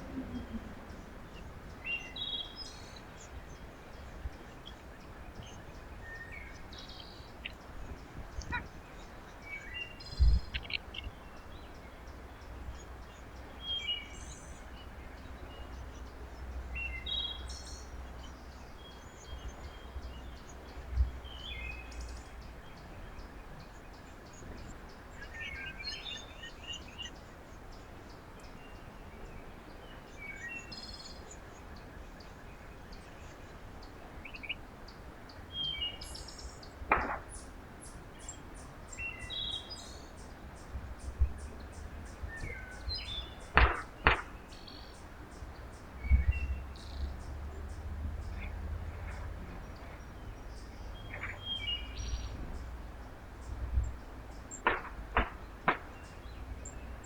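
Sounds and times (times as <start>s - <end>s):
outdoor background noise: 0.0s - 57.0s
songbirds chirping: 0.0s - 57.0s.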